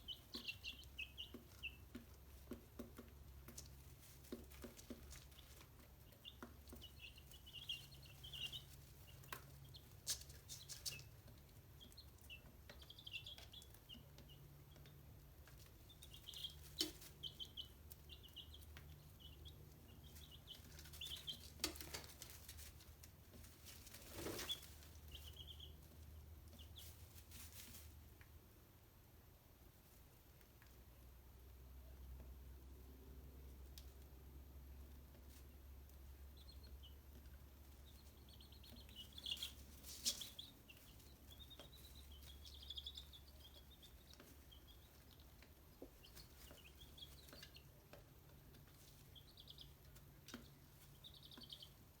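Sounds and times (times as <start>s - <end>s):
chicks peeping: 0.0s - 52.0s.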